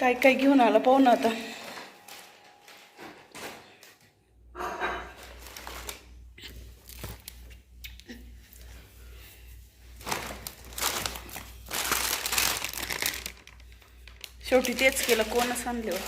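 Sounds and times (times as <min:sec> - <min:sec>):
plastic bag rustling: 0:01.1 - 0:04.1, 0:05.0 - 0:07.5, 0:09.8 - 0:16.0.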